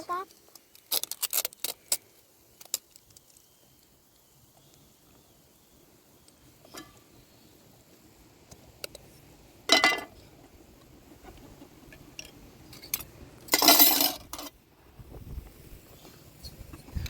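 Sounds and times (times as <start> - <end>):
dishes clattering: 9.7 - 10.1
small clinks: 12.2 - 14.6.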